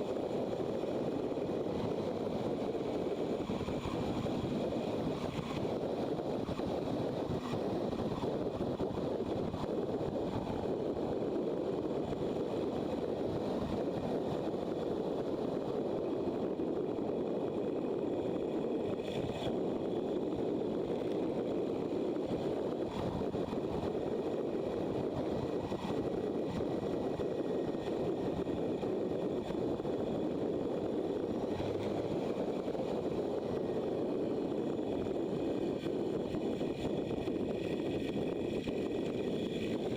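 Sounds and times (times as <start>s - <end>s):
wind rushing on moving motorcycle: 0.0s - 39.9s.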